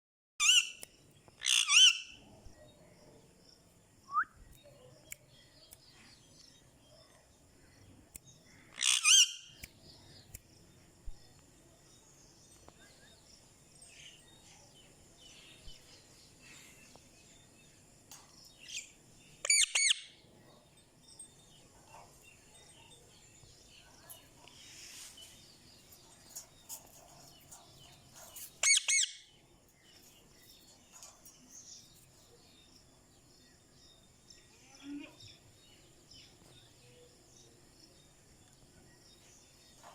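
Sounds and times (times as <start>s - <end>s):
parakeet shrill calls: 1.4s - 2.1s, 8.8s - 9.4s, 19.5s - 20.1s, 28.6s - 29.2s.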